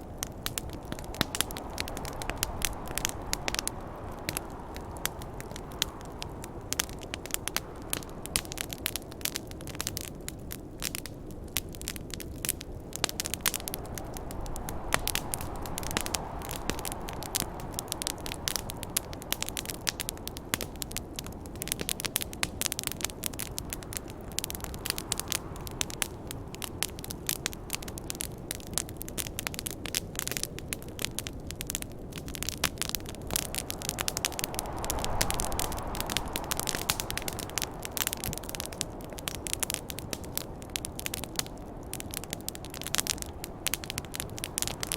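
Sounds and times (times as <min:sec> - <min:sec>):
snowstorm wind rushing: 0:00.0 - 0:10.2, 0:11.0 - 0:21.7, 0:31.7 - 0:44.9
wood fire crackling and popping: 0:00.0 - 0:44.9.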